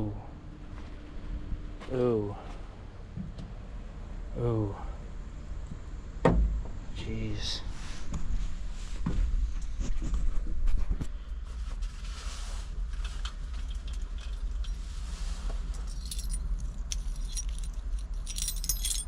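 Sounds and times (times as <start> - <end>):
keys jangling: 15.7 - 19.0.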